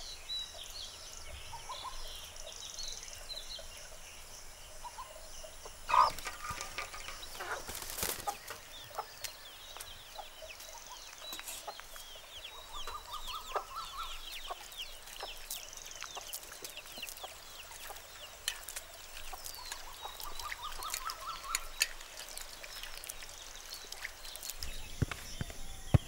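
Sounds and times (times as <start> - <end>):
chickens clucking: 4.8 - 24.5
high chirping: 4.8 - 26.0.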